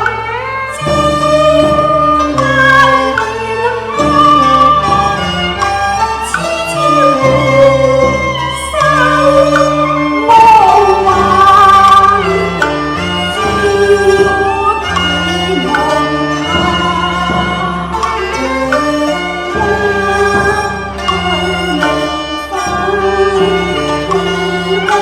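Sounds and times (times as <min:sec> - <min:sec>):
bowed strings melody: 0:00.0 - 0:25.0
person singing: 0:06.3 - 0:25.0.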